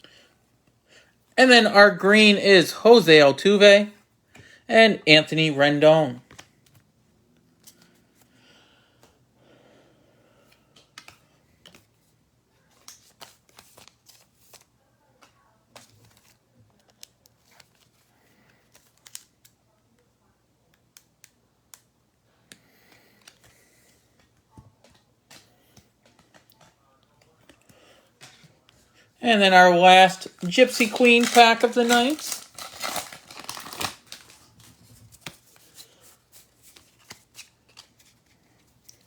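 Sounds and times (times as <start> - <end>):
trading cards being handled: 10.5 - 19.6, 20.6 - 39.0.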